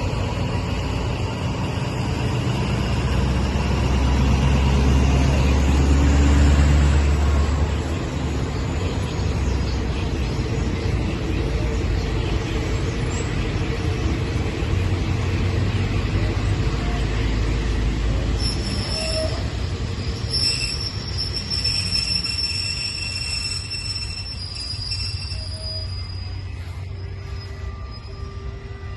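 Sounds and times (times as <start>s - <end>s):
train low rumble: 0.0s - 28.9s
shrill wheel squeal: 18.0s - 28.9s.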